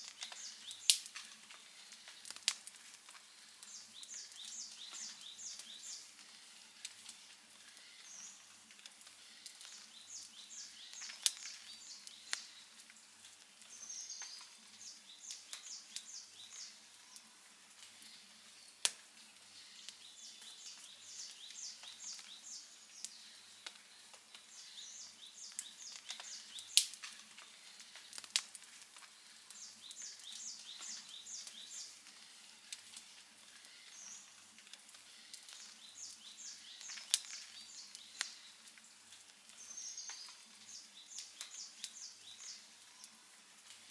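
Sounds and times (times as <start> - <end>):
sharp pops of fire: 0.0 - 5.8, 8.8 - 12.5, 25.4 - 27.3, 27.9 - 31.7, 34.6 - 38.4
wood fire crackling: 0.0 - 43.9.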